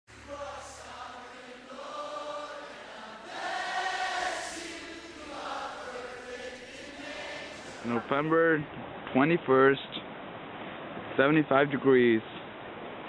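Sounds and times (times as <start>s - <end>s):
choir holding sustained notes: 0.1s - 8.6s.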